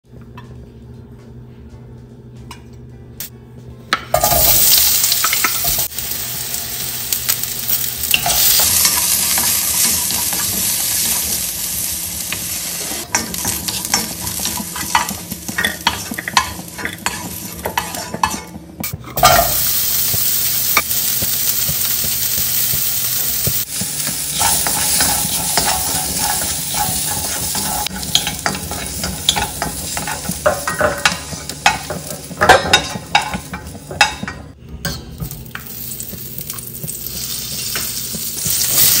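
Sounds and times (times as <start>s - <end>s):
vegetables sizzling in oil: 4.2s - 18.3s, 19.2s - 34.2s, 35.2s - 39.0s
wooden spoon stirring in wok: 19.8s - 34.2s.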